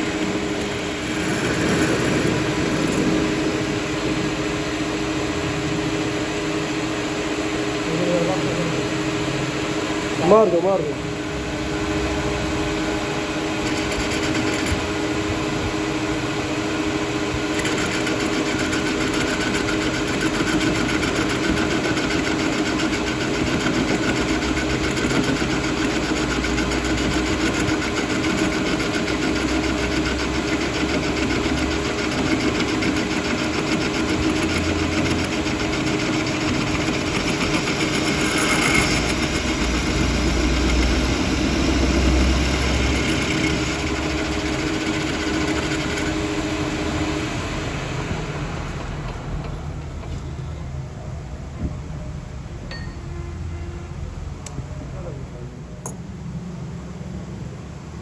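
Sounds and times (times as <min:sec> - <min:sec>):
workshop machinery rattling: 0:00.0 - 0:05.1, 0:09.8 - 0:47.2
machinery hum: 0:00.0 - 0:58.0.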